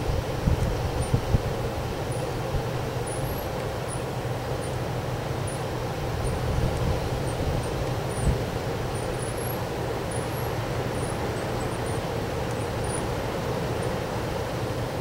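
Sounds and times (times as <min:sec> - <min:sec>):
wind buffeting microphone: 0:00.0 - 0:01.9.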